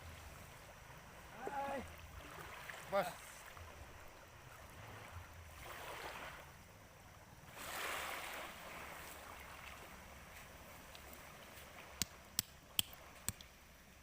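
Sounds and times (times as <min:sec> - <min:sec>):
small waves washing ashore: 0:00.0 - 0:14.0.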